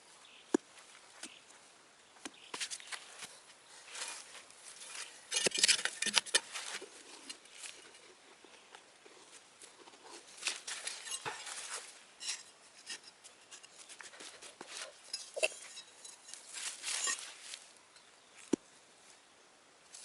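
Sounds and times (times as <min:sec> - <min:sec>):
rustling and scraping: 0:02.3 - 0:17.8.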